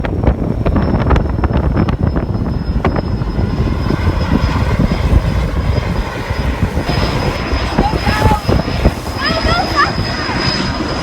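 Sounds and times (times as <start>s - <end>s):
helicopter engine and rotor rumble: 0.0s - 11.0s
sharp irregular strokes: 6.4s - 10.3s.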